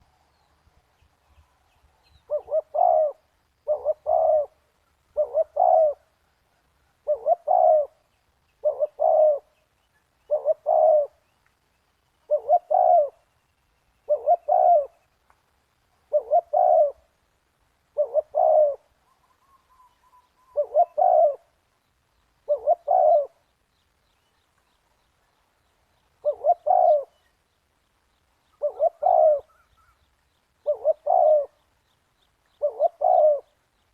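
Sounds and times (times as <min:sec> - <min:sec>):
dove cooing: 0:02.1 - 0:06.2, 0:06.9 - 0:09.6, 0:10.3 - 0:11.2, 0:12.3 - 0:13.3, 0:14.0 - 0:15.0, 0:16.0 - 0:17.1, 0:17.9 - 0:21.6, 0:22.4 - 0:23.5, 0:26.2 - 0:27.3, 0:28.6 - 0:30.0, 0:30.6 - 0:31.7, 0:32.6 - 0:33.6.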